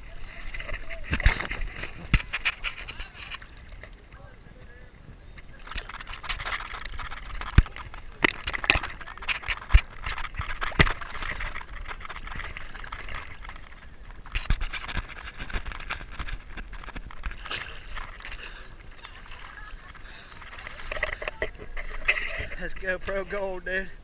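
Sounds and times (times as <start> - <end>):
scraping and rustling: 0.0 - 4.0, 5.4 - 23.9.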